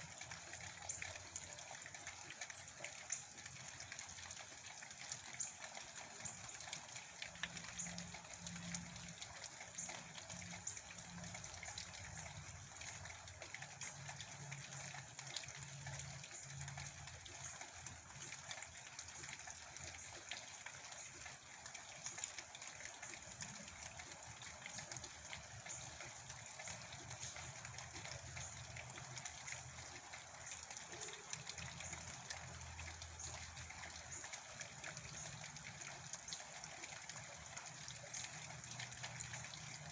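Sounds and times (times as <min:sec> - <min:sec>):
steady rain: 0:07.2 - 0:19.0, 0:23.2 - 0:39.9.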